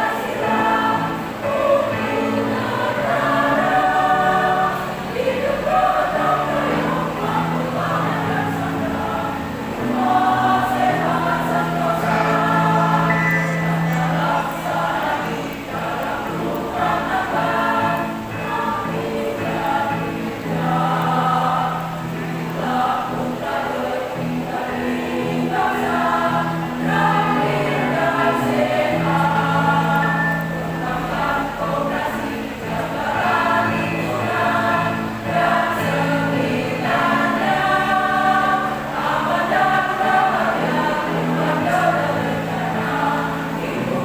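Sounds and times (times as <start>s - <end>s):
women's choir singing: 0.0s - 44.0s
low held notes: 10.8s - 16.2s.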